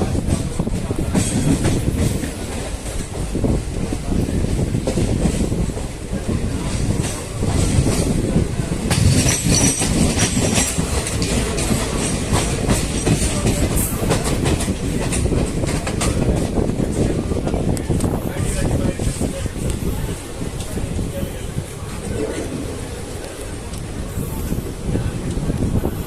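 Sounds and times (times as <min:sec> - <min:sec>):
passenger train rumbling: 0:00.0 - 0:26.0
wheels clattering over rail joints: 0:08.8 - 0:17.6.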